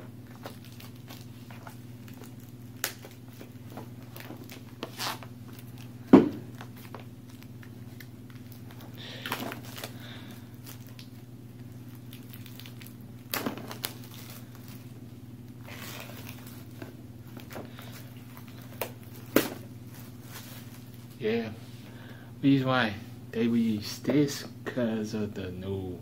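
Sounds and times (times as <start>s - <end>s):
packaging knocks and rustles: 0.0s - 10.0s, 11.8s - 14.9s, 15.6s - 21.2s
low electrical hum: 0.0s - 26.0s.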